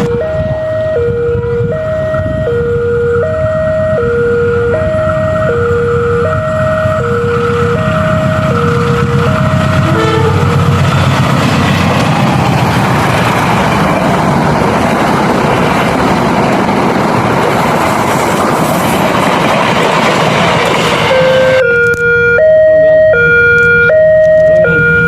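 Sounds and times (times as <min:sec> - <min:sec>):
two-tone crossing alarm: 0:00.0 - 0:10.6, 0:21.1 - 0:25.0
train wheels on rails: 0:04.5 - 0:22.0.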